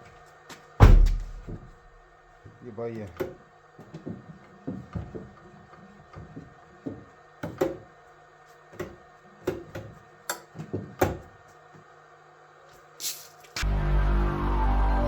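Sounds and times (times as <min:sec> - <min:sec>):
short hiss: 0:13.0 - 0:13.6
music: 0:13.6 - 0:15.0.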